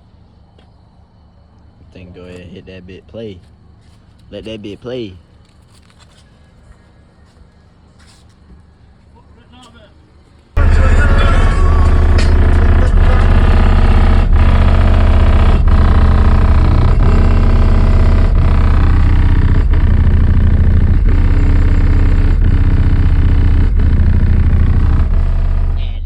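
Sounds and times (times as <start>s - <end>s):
bass-heavy music from car stereo: 10.6s - 26.0s.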